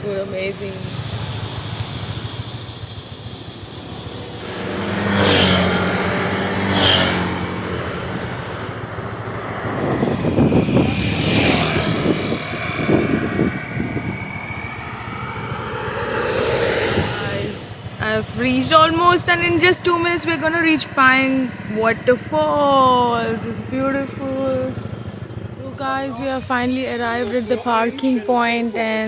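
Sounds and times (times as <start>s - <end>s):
motorbike engine accelerating: 0.0s - 29.0s
wind buffeting microphone: 0.0s - 29.0s.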